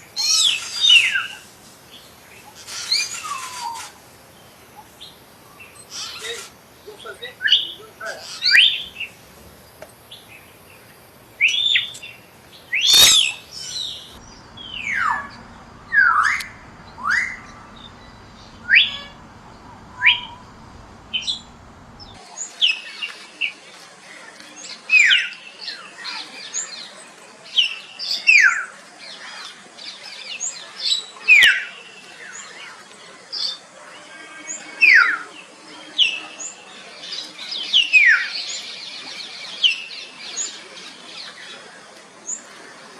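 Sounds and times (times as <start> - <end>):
harsh bird call: 0.0 - 22.2
myna whistling calls: 0.0 - 22.2.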